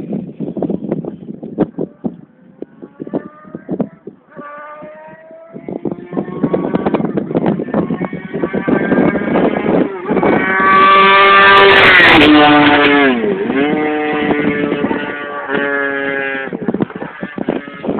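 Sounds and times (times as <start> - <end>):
motorcycle engine at high revs: 4.2 - 17.9.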